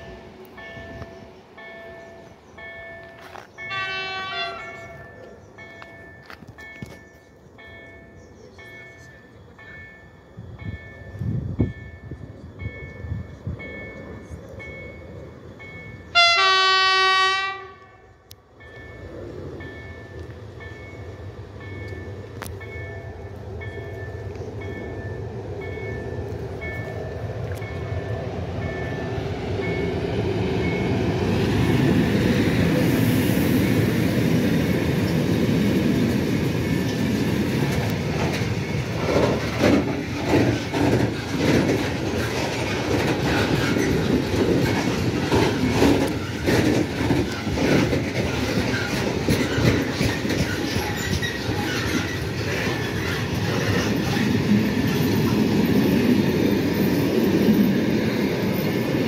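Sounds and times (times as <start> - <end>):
freight train rumble: 0.0 - 59.0
wheels clicking over rail joints: 34.2 - 59.0.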